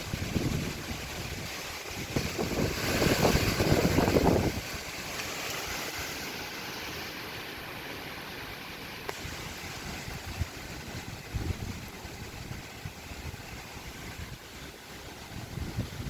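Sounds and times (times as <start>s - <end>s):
strong wind buffeting microphone: 0.0s - 5.0s, 9.2s - 16.0s.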